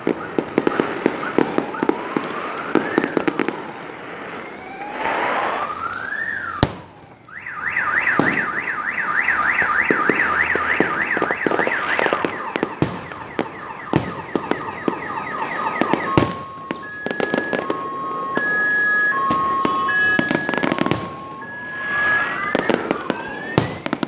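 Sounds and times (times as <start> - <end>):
car alarm wailing: 0.0 - 24.0
fireworks banging and crackling: 0.0 - 24.0
car alarm beeps: 7.3 - 23.8.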